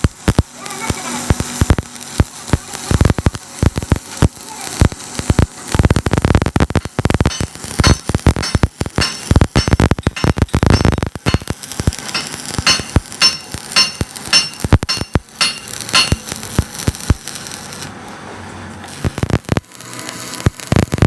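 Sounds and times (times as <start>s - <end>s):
sharp metallic strikes: 6.8s - 16.4s.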